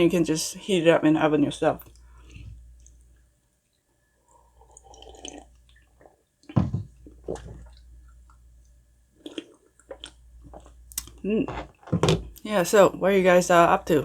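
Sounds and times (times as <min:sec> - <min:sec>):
wet chewing and mouth noises: 0:09.2 - 0:11.9.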